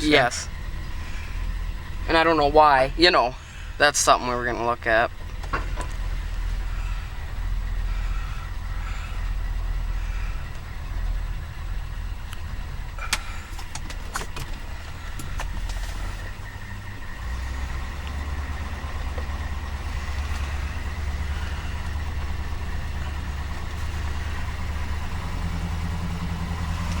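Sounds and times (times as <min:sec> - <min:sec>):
car engine idling: 0:00.0 - 0:27.0
sharp clicks: 0:12.3 - 0:15.9.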